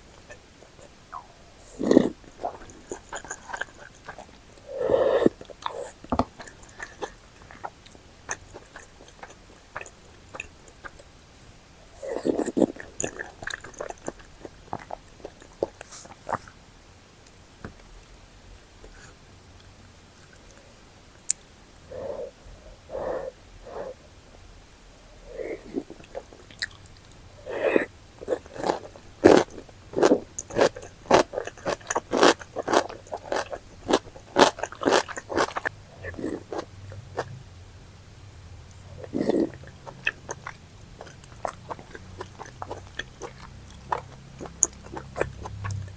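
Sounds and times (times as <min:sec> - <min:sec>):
biting and chewing: 0:00.1 - 0:11.2, 0:12.0 - 0:16.5, 0:25.6 - 0:37.4, 0:39.0 - 0:45.9
person chewing: 0:00.1 - 0:11.2, 0:11.9 - 0:16.6, 0:25.2 - 0:37.4, 0:38.8 - 0:45.9.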